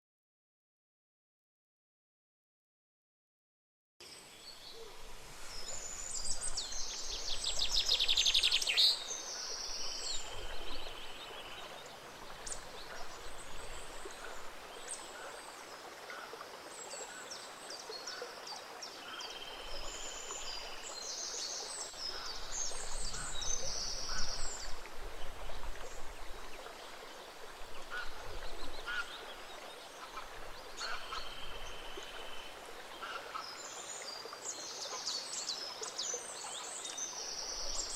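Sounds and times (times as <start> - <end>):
stream flowing: 4.0 - 37.9
songbirds chirping and trilling: 16.9 - 37.9.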